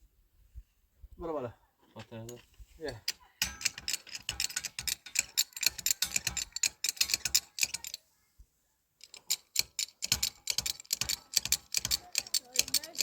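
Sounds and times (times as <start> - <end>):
sharp clicks and taps: 9.0 - 13.0.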